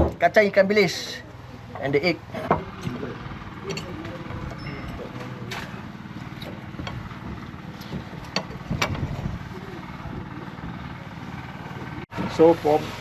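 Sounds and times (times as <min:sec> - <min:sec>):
low engine hum: 0:01.0 - 0:13.0.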